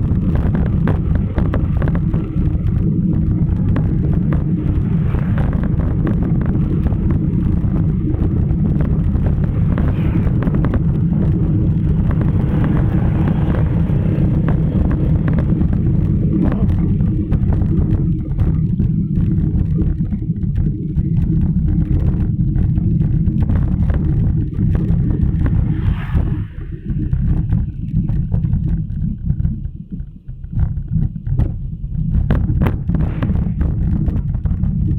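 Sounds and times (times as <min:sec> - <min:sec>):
road noise: 0:00.0 - 0:18.4, 0:24.4 - 0:27.8
wind buffeting microphone: 0:00.0 - 0:34.9.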